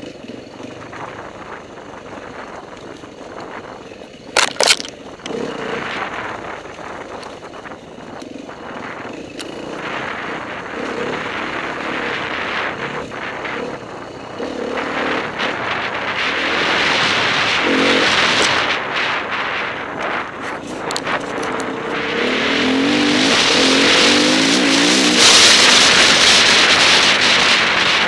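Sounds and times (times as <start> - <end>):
motorcycle engine revving: 0.0 - 28.0
knocks from bumpy ground: 4.4 - 4.9
wind rush: 5.4 - 28.0.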